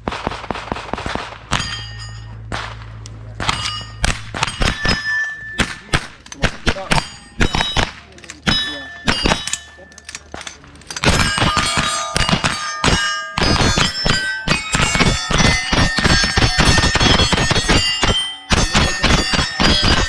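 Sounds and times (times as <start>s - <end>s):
steel targets clanging: 1.4s - 20.0s.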